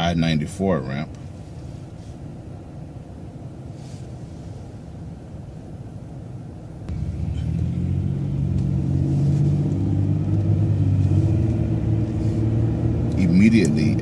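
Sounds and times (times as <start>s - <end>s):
bus engine accelerating: 6.2s - 14.0s.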